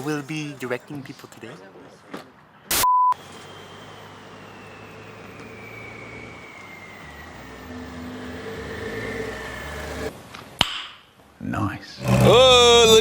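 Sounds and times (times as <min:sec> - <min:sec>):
car engine running: 0:03.2 - 0:10.1, 0:12.0 - 0:13.0
high whine falling in pitch: 0:03.2 - 0:10.1, 0:12.0 - 0:13.0.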